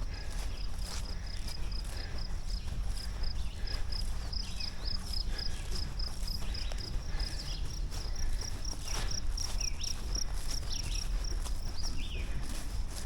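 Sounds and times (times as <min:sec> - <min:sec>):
footsteps on forest trail: 0:00.0 - 0:13.0.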